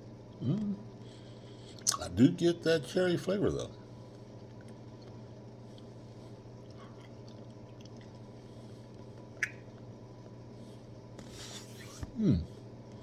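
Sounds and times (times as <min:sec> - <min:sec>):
steady low hum: 0:00.0 - 0:13.0
chewing gummy candy: 0:01.7 - 0:02.2, 0:04.1 - 0:06.0, 0:06.6 - 0:09.9
wet mouth clicks: 0:01.8 - 0:02.0, 0:09.4 - 0:09.6.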